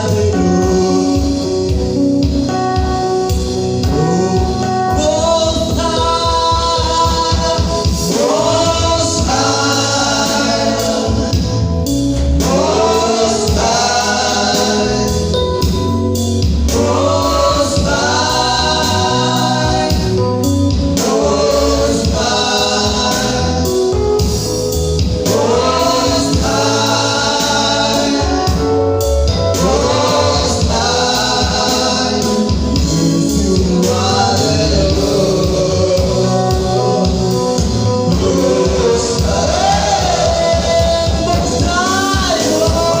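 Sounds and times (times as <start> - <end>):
band with bass and beat: 0.0 - 43.0
choir singing: 6.2 - 11.6, 12.4 - 15.5, 16.7 - 24.0, 25.2 - 28.9, 29.5 - 43.0.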